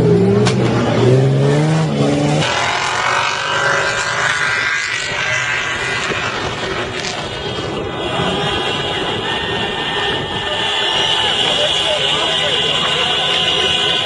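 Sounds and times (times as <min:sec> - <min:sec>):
suv engine revving hard: 0:00.8 - 0:06.9.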